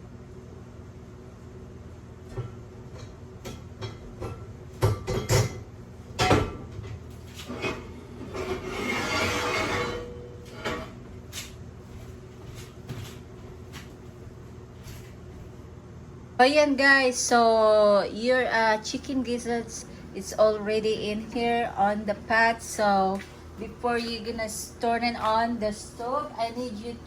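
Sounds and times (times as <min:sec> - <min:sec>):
pot and utensils clattering: 0:02.3 - 0:11.0.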